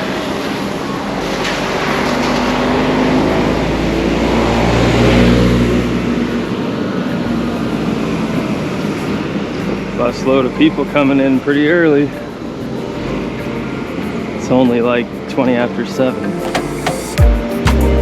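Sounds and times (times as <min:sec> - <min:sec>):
bus diesel engine passing: 0:00.0 - 0:17.2.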